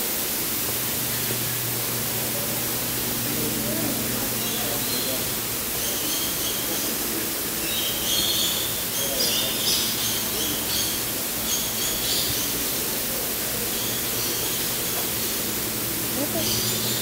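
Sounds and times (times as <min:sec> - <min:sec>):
steady background hiss: 0:00.0 - 0:17.0
birds chirping: 0:00.2 - 0:17.0.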